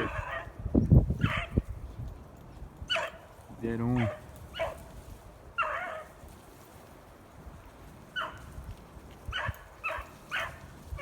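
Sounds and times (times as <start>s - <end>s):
dogs barking: 0.0s - 0.6s, 1.2s - 1.6s, 2.9s - 3.3s, 3.9s - 4.8s, 5.6s - 6.2s, 8.1s - 8.5s, 9.3s - 11.0s
wind rumbling on microphone: 0.0s - 11.0s.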